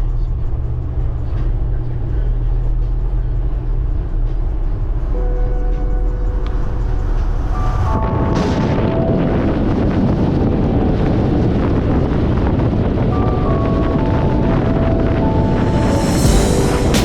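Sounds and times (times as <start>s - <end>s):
faint music: 0.0s - 17.0s
road and wind noise: 0.0s - 17.0s.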